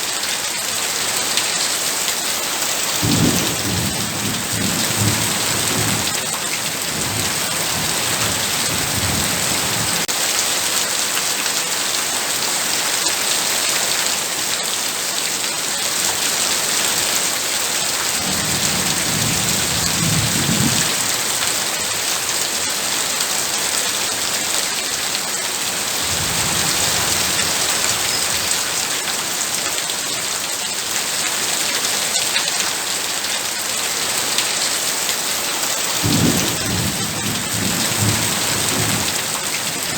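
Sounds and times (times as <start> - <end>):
heavy rain pouring: 0.0 - 39.9
thunder rumbling: 3.0 - 10.1, 18.2 - 21.3, 26.0 - 28.7, 36.0 - 39.9.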